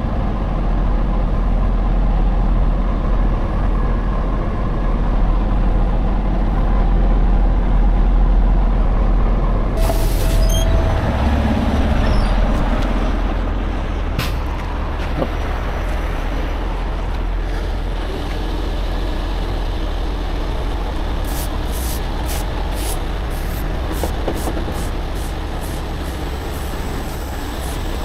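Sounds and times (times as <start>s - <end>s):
truck diesel engine rumbling: 0.0s - 28.0s
sharp hiss of air: 9.8s - 10.6s, 21.2s - 28.0s.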